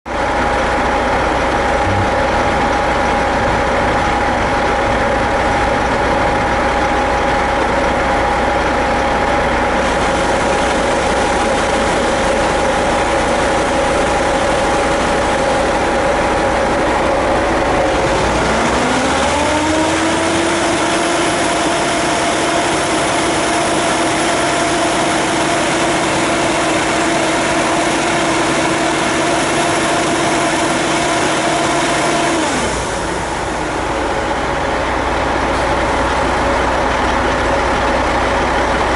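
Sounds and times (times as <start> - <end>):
fire truck engine and pump running: 0.1 - 38.9
faint high whine: 1.8 - 6.6
steady rushing noise: 1.8 - 7.4.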